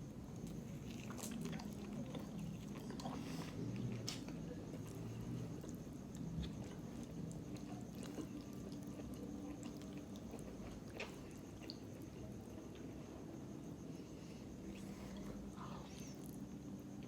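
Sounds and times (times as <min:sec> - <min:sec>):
person chewing food: 0:00.4 - 0:12.1.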